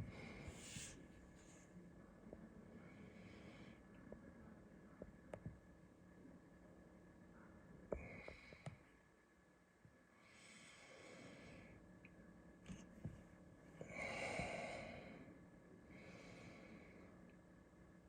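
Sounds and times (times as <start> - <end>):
soft breathing: 0.0 - 4.5, 7.9 - 9.0, 10.1 - 11.9, 12.7 - 17.4.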